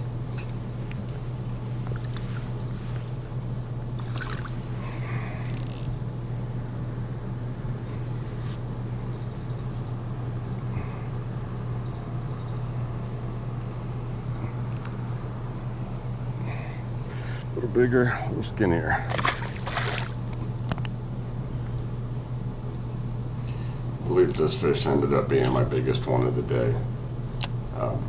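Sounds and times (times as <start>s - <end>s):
boat motor humming: 0.7s - 6.1s, 14.5s - 20.7s.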